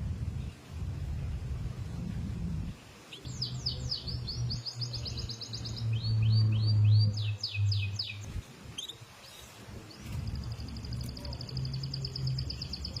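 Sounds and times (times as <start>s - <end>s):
canary singing: 3.1s - 13.0s.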